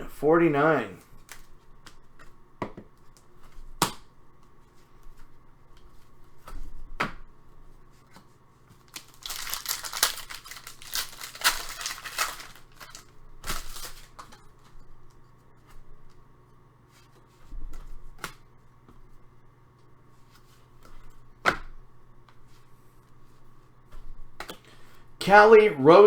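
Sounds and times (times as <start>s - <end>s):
plastic sleeves crinkling: 8.7s - 14.4s.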